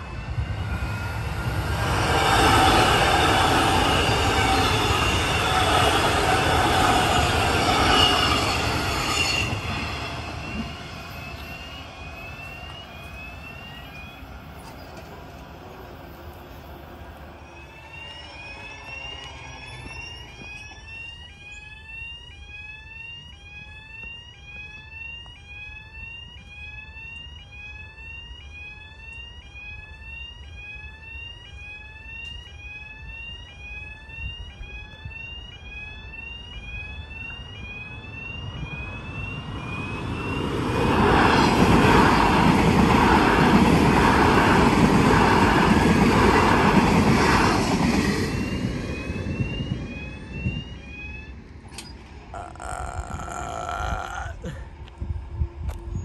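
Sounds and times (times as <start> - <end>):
train wheels over rail joints: 0.0 - 21.5.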